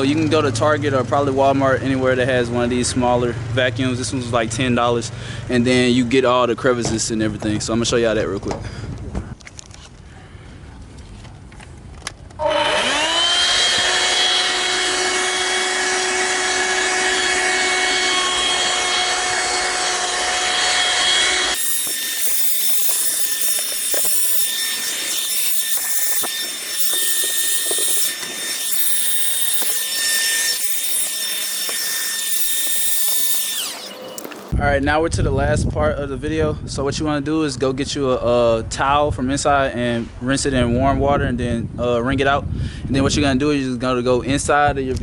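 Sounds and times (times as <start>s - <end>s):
handheld vacuum cleaner whine: 12.4s - 34.6s
vacuum nozzle scraping surfaces: 21.5s - 34.6s.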